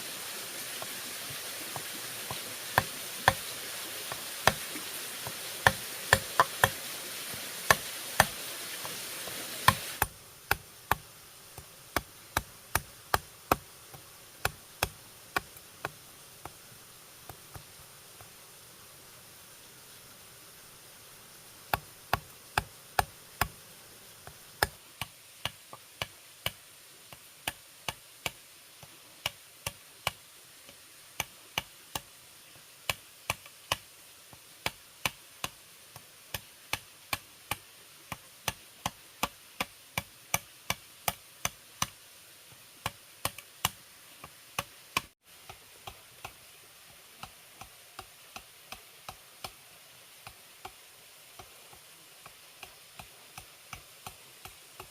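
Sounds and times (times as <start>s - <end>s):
steady hiss: 0.0s - 54.9s
blade chopping bamboo: 1.8s - 9.0s, 9.6s - 16.6s, 21.7s - 23.6s, 32.9s - 42.0s, 42.8s - 46.4s.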